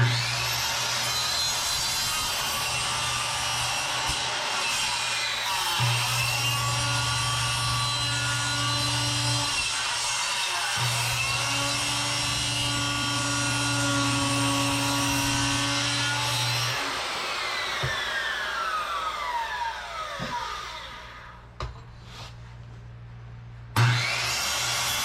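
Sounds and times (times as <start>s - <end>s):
electric saw cutting wood: 0.0s - 21.4s, 23.8s - 25.0s.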